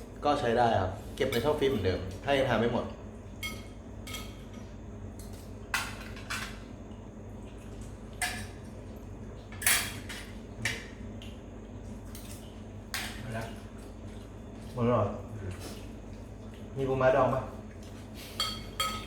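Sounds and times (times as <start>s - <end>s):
cutlery clinking on plates: 18.4s - 19.0s.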